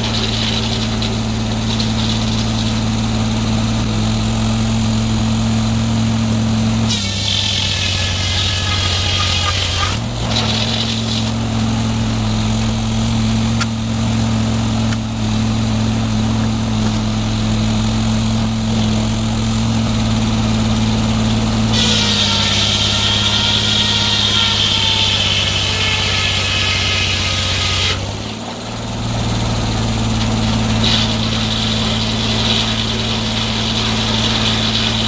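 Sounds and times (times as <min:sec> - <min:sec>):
sawmill engine running: 0:00.0 - 0:35.0
high whine: 0:08.0 - 0:21.8.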